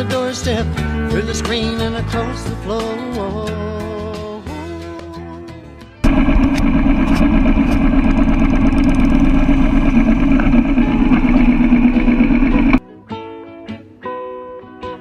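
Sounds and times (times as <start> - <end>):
motorcycle engine running: 6.0 - 12.8.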